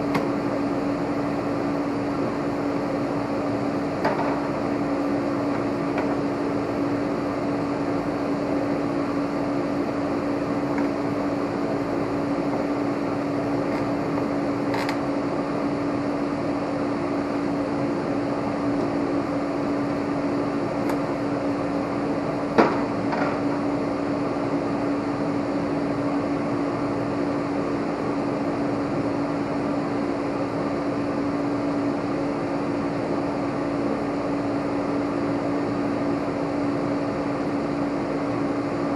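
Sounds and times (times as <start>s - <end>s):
mechanical hum with whooshing: 0.0s - 38.9s.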